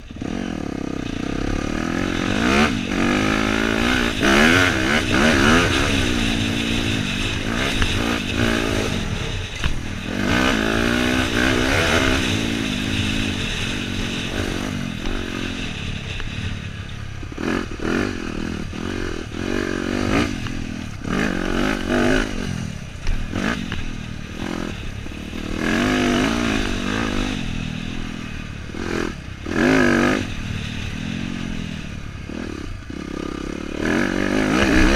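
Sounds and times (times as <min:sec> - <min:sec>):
dirt bike engine revving: 0:00.0 - 0:34.9
knocks and clatter: 0:02.4 - 0:16.4.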